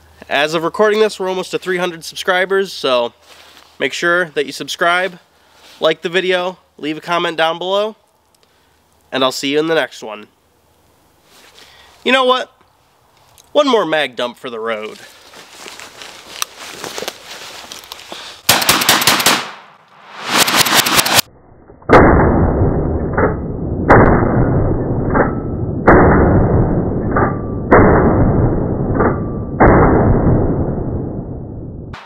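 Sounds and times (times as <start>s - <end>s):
loud bursts of noise: 18.5s - 21.3s
shotgun shots echoing: 18.5s - 21.3s.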